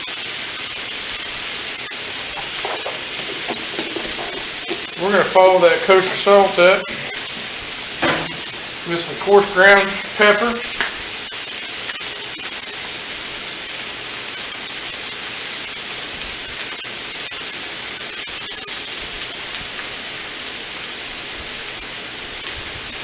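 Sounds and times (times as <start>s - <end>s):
food sizzling on a griddle: 0.0s - 23.0s
oil popping: 1.0s - 8.9s.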